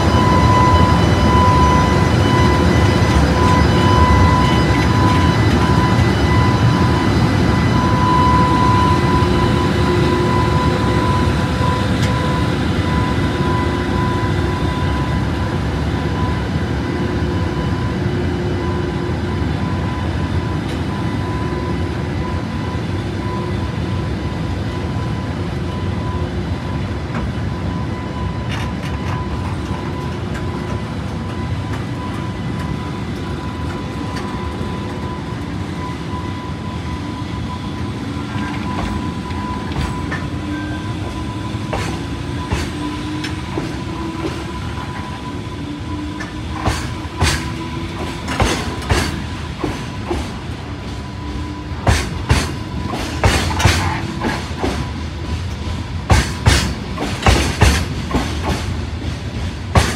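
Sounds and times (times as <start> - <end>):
freight train wheels rumbling: 0.0 - 59.9
wheels clacking on rail joints: 46.1 - 50.6, 51.8 - 59.9.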